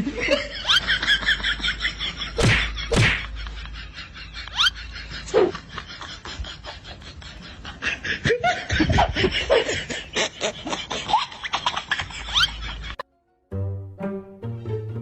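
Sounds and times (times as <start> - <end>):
people laughing hard: 0.0 - 13.0
music: 13.1 - 15.0.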